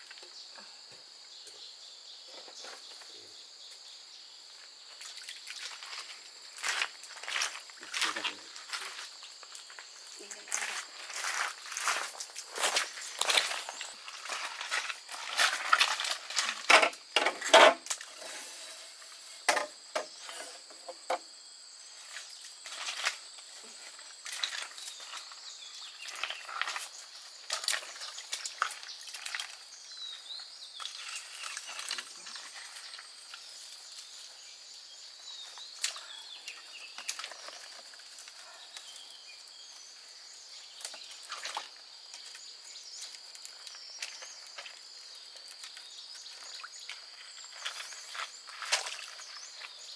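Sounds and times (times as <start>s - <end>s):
insects droning: 0.0s - 49.9s
sticks and dry leaves crackling: 5.8s - 17.0s, 22.4s - 34.4s, 40.7s - 49.9s.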